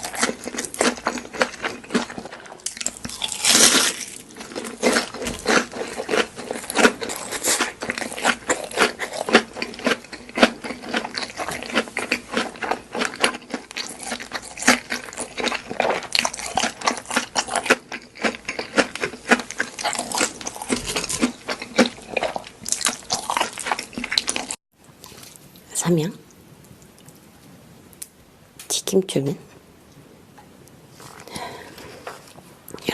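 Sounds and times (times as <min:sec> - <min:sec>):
chewing and crunching food: 0:00.0 - 0:25.5, 0:30.9 - 0:32.9.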